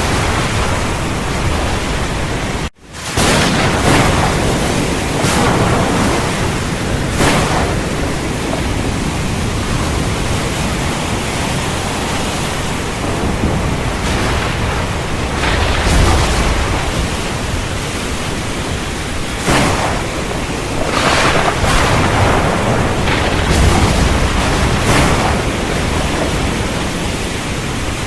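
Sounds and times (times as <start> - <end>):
heavy rain falling: 0.0 - 28.0
thunder rumbling: 0.0 - 28.0
sharp loud hits: 3.0 - 8.9, 13.0 - 27.3.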